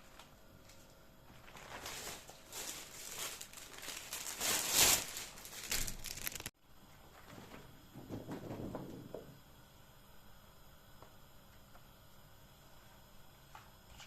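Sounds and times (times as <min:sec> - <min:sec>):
crinkling rustling of handling: 0:00.0 - 0:08.7.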